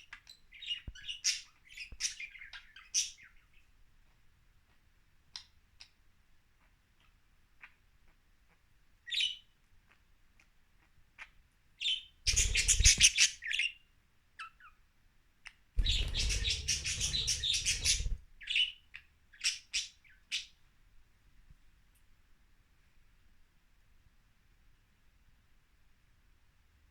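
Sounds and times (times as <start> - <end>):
budgerigars chirping: 12.3 - 13.3, 15.8 - 18.7
budgerigars chattering fast: 15.8 - 18.2.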